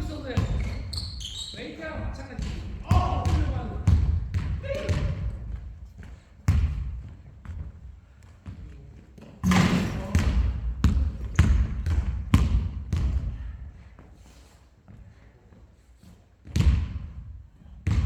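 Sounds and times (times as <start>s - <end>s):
basketball bouncing on gym floor: 0.0s - 1.4s, 2.0s - 8.7s, 9.4s - 13.8s, 16.4s - 18.0s.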